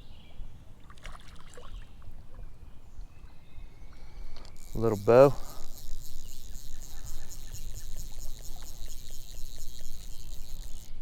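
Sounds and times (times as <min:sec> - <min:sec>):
stream water trickling: 0:00.8 - 0:02.4, 0:04.5 - 0:11.0
insect chorus: 0:04.4 - 0:11.0.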